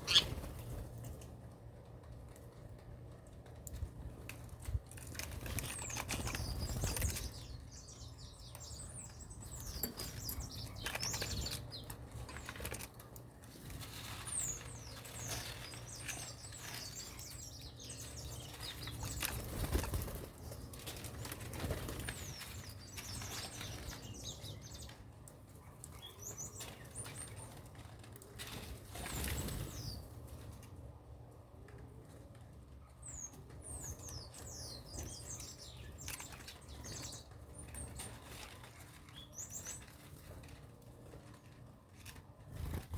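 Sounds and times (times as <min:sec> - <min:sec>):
small birds chirping: 0:00.0 - 0:30.9, 0:31.7 - 0:42.9
wing flaps: 0:18.2 - 0:23.9, 0:42.0 - 0:42.9.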